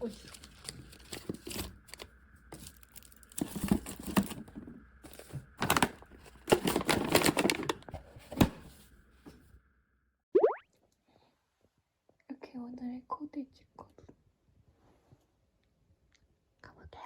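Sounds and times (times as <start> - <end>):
bags and clothes rustling: 2.6 - 8.4.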